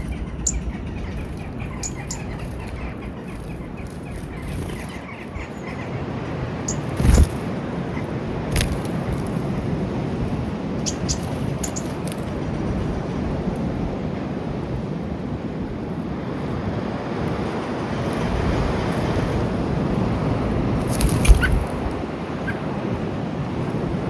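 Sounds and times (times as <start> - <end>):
small birds chirping: 0.0 - 9.5, 10.8 - 12.2, 20.8 - 22.6
low rumble of wind: 0.0 - 24.0.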